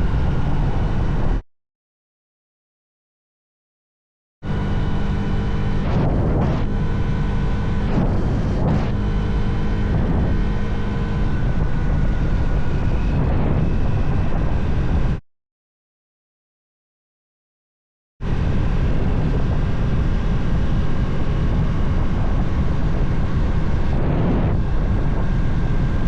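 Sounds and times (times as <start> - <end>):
motorcycle engine running: 0.0 - 1.4, 4.4 - 15.2, 18.2 - 26.0
wind rumble on microphone: 0.0 - 1.4, 4.4 - 15.2, 18.2 - 26.0.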